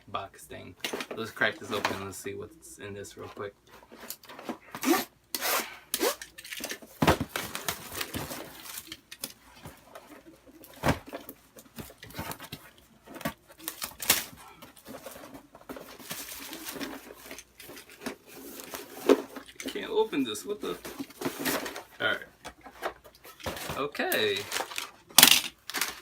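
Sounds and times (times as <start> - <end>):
cardboard and tape tearing: 4.1 - 9.0.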